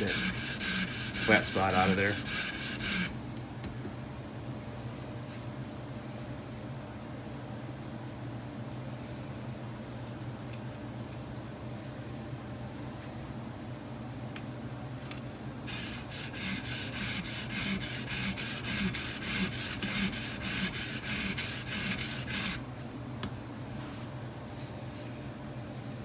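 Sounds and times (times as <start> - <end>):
sharpening stone scraping knife: 0.0 - 3.1.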